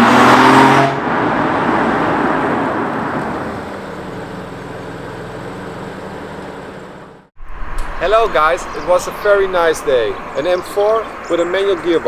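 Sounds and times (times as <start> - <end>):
car engine revving hard: 0.0 - 3.6
road and wind noise: 0.0 - 12.0.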